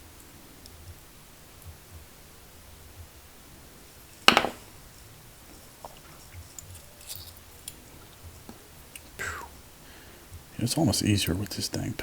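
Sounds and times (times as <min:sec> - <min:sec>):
metal pick clicking on lock pins: 0:06.6 - 0:07.8.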